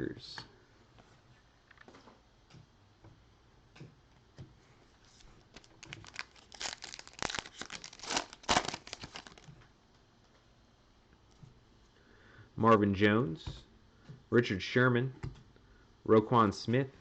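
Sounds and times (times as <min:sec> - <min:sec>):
wrapper crinkling and tearing: 0:05.1 - 0:09.5.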